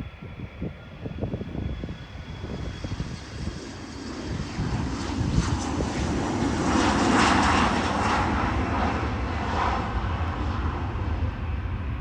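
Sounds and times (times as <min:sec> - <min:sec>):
airplane engines running: 0:00.0 - 0:12.0.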